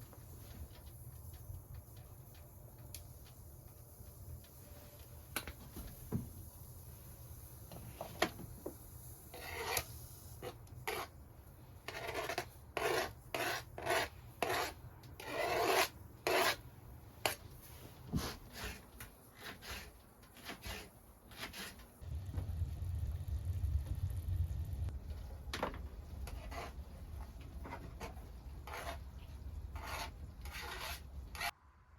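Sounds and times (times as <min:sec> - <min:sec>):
rasping scraping strokes: 0:09.3 - 0:11.1, 0:11.8 - 0:16.6, 0:17.2 - 0:21.9, 0:26.2 - 0:31.5.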